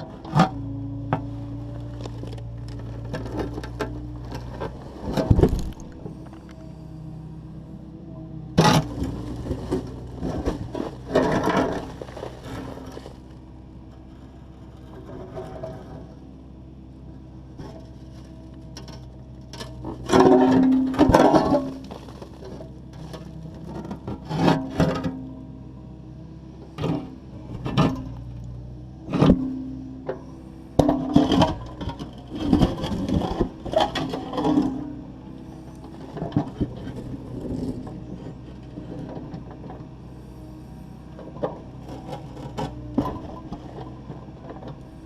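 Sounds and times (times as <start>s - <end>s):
excavator diesel engine running: 0.0s - 45.0s
concrete crunching and knocking: 1.9s - 6.5s, 19.6s - 24.7s.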